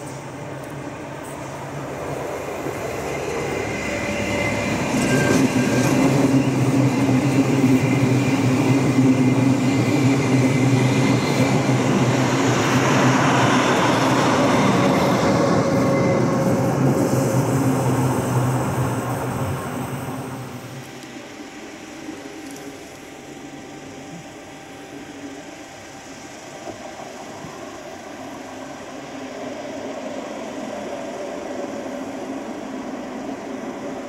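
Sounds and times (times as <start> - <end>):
electric train hum: 0.0 - 34.0
wheels rumbling on rail: 0.0 - 34.0
faint high squeal: 3.1 - 6.6, 13.9 - 18.0.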